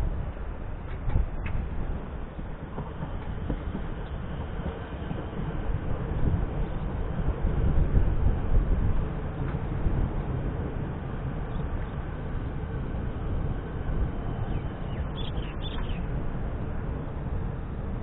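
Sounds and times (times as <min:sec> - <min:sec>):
freight train wheels rumbling: 0:00.0 - 0:18.0
bird chirps: 0:14.3 - 0:16.1.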